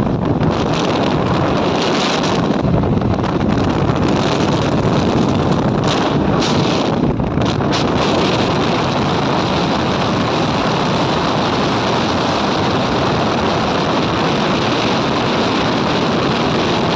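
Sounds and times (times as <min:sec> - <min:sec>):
road noise: 0:00.0 - 0:16.9
wind rushing over microphone: 0:00.0 - 0:16.9.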